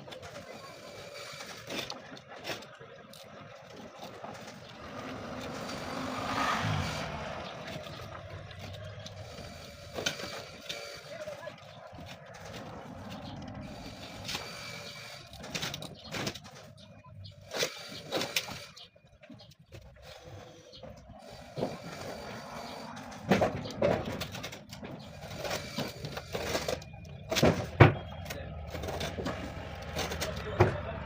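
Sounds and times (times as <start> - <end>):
vehicle passing by: 4.4 - 15.1, 20.3 - 25.7.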